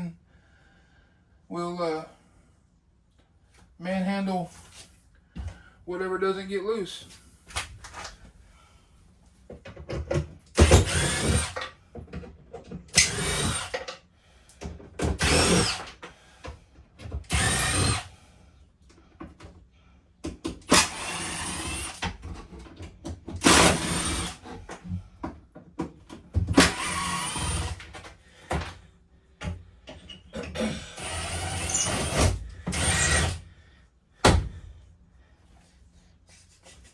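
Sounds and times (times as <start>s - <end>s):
power drill running: 10.6s - 11.7s, 12.9s - 13.9s, 15.2s - 16.1s, 17.3s - 18.1s, 20.7s - 22.0s, 23.4s - 24.5s, 26.5s - 27.9s, 30.7s - 33.4s.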